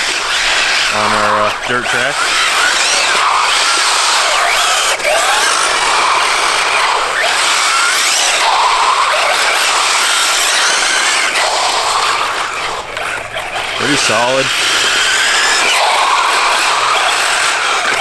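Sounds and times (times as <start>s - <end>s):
electric motor whining: 0.0s - 18.0s
tyres and drivetrain rushing: 0.0s - 18.0s.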